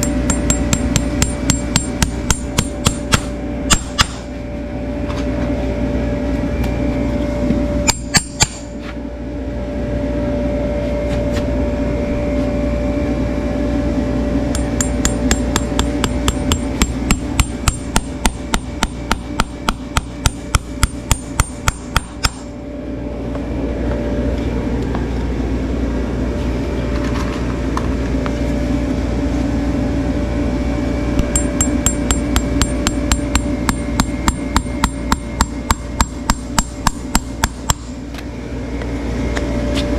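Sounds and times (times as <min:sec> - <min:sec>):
ringing hammer taps: 0:00.0 - 0:04.1, 0:14.5 - 0:22.4, 0:31.2 - 0:37.9
steady hum: 0:00.0 - 0:39.9.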